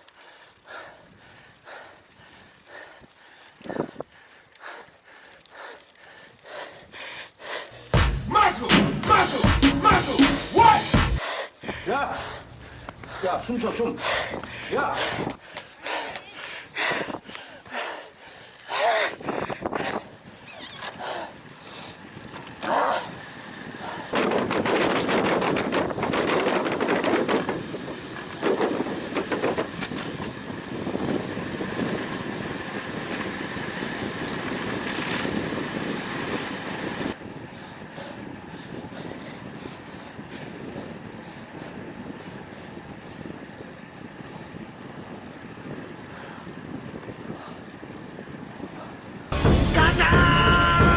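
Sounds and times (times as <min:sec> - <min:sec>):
wind buffeting microphone: 0:11.6 - 0:49.4.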